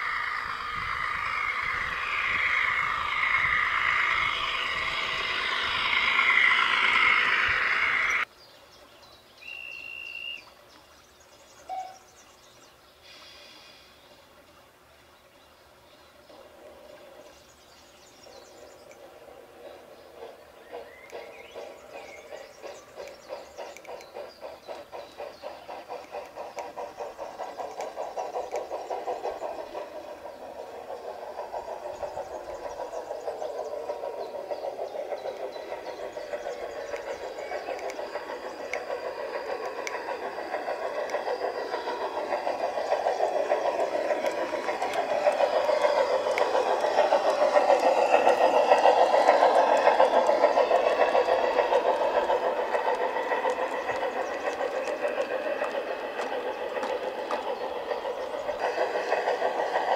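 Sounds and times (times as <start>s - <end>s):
model train rattling on track: 0.0s - 8.3s, 16.2s - 59.9s.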